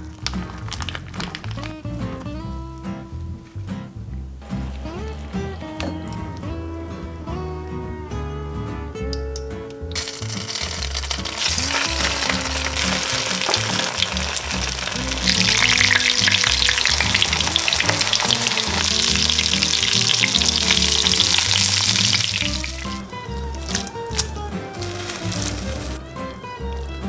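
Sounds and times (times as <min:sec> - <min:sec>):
spring rolls sizzling in oil: 0:10.0 - 0:26.9.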